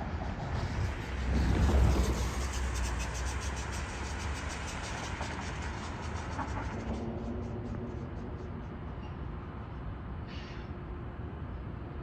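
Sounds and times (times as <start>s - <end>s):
passenger train rumbling: 0.0s - 12.0s.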